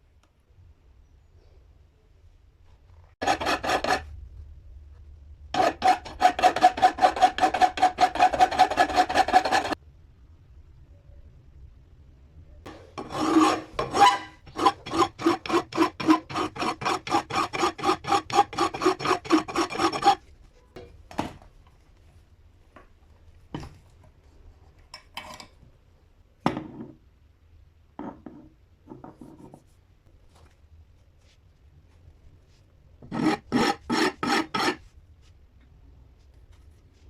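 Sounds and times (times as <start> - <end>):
rhythmic rasping strokes: 5.6 - 9.8, 12.7 - 20.2.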